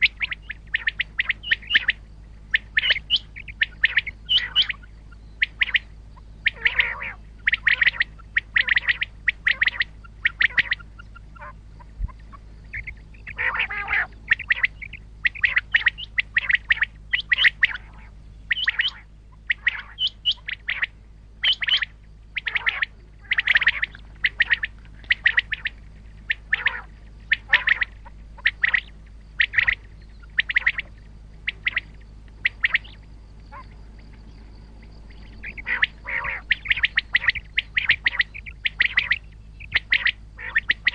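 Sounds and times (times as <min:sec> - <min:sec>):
low hum: 0:00.0 - 0:40.9
quail calling: 0:00.0 - 0:40.9.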